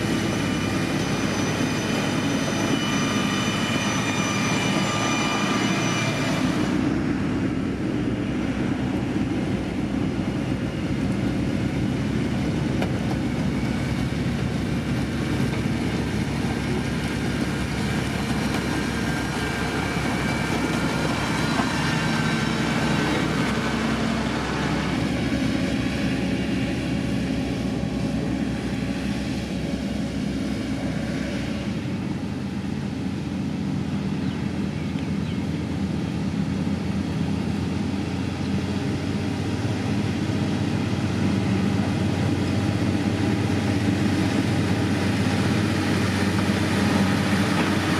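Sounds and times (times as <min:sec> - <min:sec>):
high whine: 0:00.0 - 0:35.0
diesel engine rumbling: 0:00.0 - 0:47.9.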